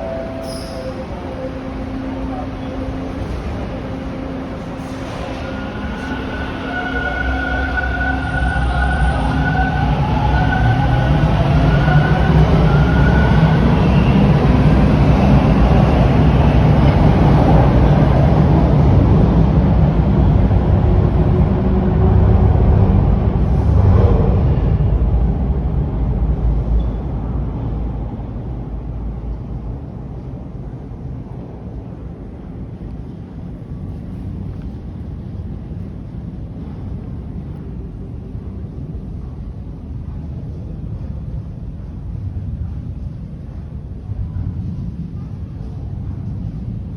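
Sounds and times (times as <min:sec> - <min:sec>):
subway train motor whine: 0:00.0 - 0:31.5
subway train rumble: 0:00.0 - 0:46.9.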